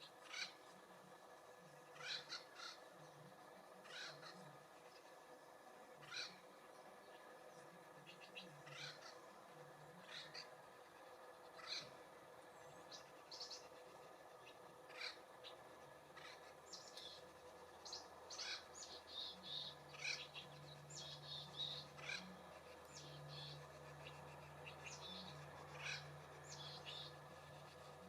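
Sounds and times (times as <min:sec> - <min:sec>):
faint low hum: 0:00.0 - 0:28.0
songbirds chirping: 0:00.0 - 0:28.0.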